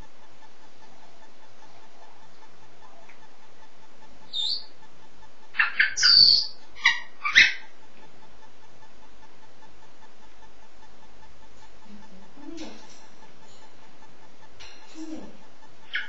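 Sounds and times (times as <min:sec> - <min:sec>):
parrot whistling and squawking: 0:04.3 - 0:04.7, 0:05.6 - 0:07.7.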